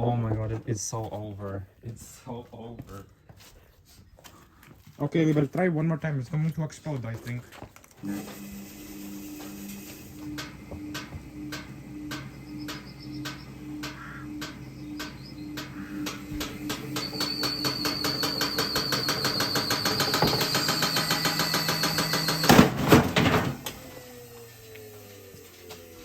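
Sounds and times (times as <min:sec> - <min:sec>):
thin high whine: 0:08.0 - 0:22.7
washing machine drum knocking: 0:10.4 - 0:23.6
loud bangs: 0:12.1 - 0:23.8.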